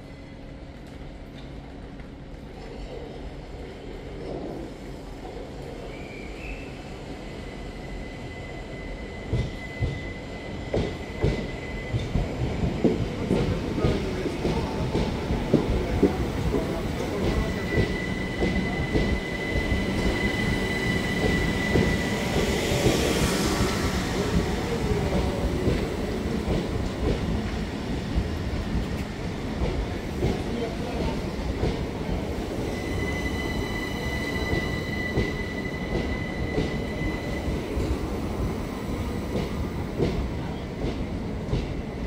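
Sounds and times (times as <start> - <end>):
train rumble: 9.1 - 42.0
high wheel squeal: 32.7 - 37.5.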